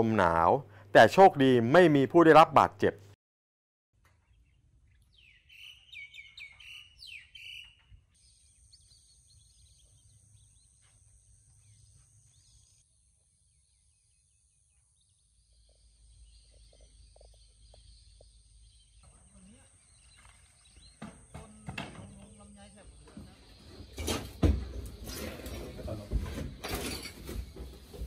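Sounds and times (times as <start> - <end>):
small birds chirping: 4.1 - 26.2.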